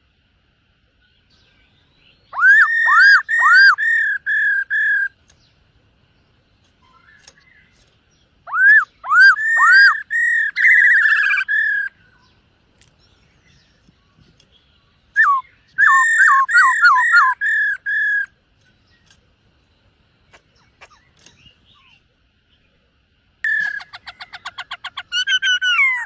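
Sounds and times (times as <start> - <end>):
bird singing whistled phrases: 2.1 - 5.2, 8.5 - 12.3, 15.1 - 18.3, 23.5 - 24.0.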